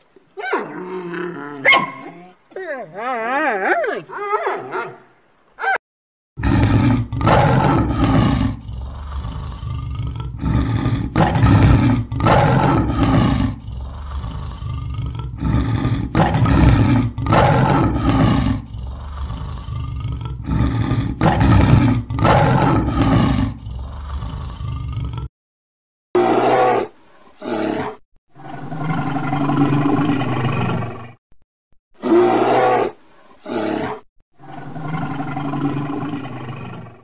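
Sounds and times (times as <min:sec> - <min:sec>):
tiger roaring: 0:06.4 - 0:25.3, 0:26.2 - 0:31.2, 0:32.0 - 0:37.0.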